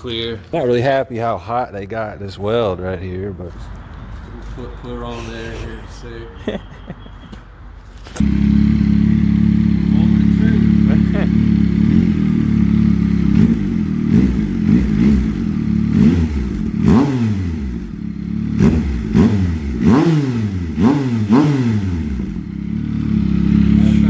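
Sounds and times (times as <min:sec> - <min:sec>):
motorcycle engine revving: 0:08.1 - 0:24.0.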